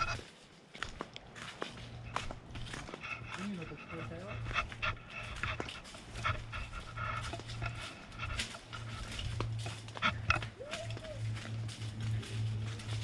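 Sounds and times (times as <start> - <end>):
animal panting: 0.0 - 0.2, 1.8 - 13.0.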